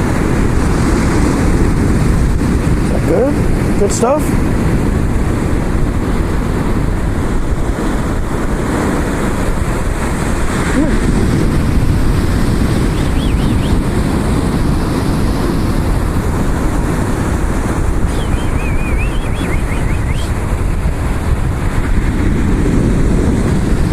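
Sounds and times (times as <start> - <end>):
surf washing: 0.0 - 23.9
wind rumble on microphone: 0.0 - 23.9
faint gull calls: 18.1 - 20.3.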